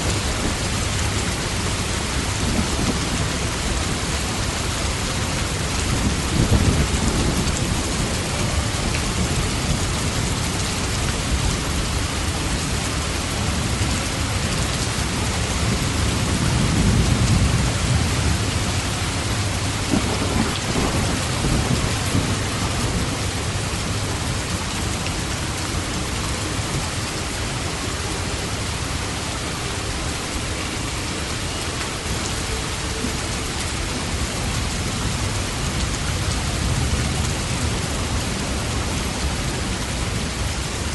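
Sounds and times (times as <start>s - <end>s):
heavy rain: 0.0s - 40.9s
thunder rumbling: 0.1s - 12.1s, 15.0s - 24.7s.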